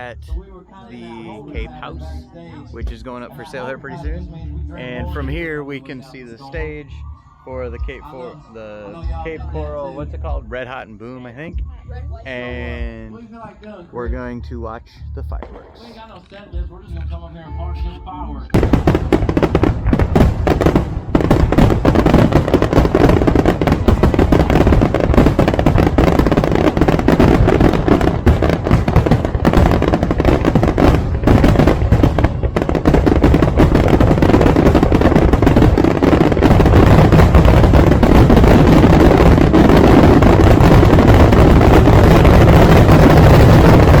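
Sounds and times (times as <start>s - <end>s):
fireworks bangs: 15.4s - 16.0s, 18.6s - 44.0s.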